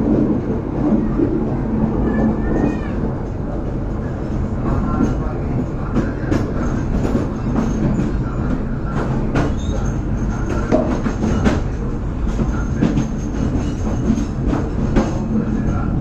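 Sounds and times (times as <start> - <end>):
train wheels rumbling on rails: 0.0 - 16.0
clacks and knocks: 4.5 - 15.7.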